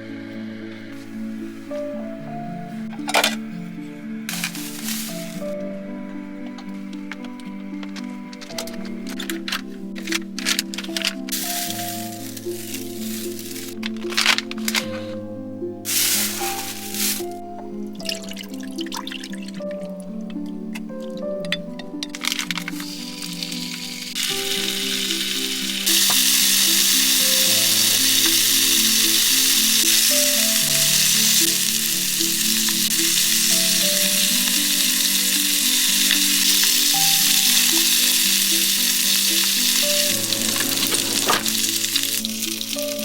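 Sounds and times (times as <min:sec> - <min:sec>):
background music: 0:00.0 - 0:43.0
food sizzling in frying pan: 0:04.3 - 0:05.5, 0:11.3 - 0:15.0, 0:15.9 - 0:17.4, 0:22.2 - 0:43.0.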